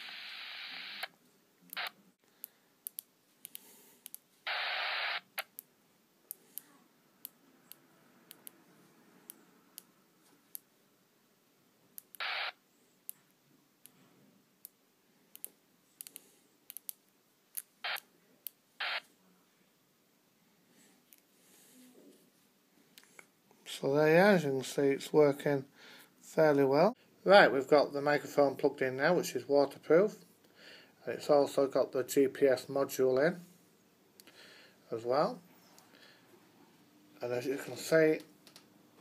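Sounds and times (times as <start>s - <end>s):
radio speaker hiss: 0.0s - 2.0s, 4.4s - 5.5s, 12.1s - 12.6s, 17.8s - 18.1s, 18.8s - 19.1s.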